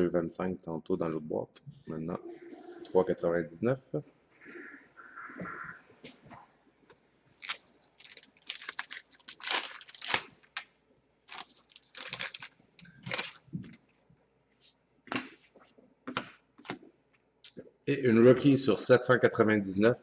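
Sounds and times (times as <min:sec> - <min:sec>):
foil wrapper crinkling: 0:07.3 - 0:10.7, 0:11.3 - 0:13.8.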